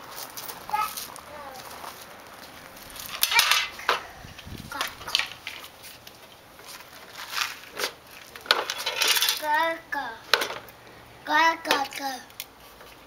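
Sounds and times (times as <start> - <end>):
child's high-pitched voice: 0.7 - 1.8, 3.2 - 3.8, 4.6 - 5.2, 9.4 - 10.3, 11.2 - 12.4
rocks and toy trucks clattering: 2.9 - 4.0, 7.0 - 9.6, 10.3 - 10.8.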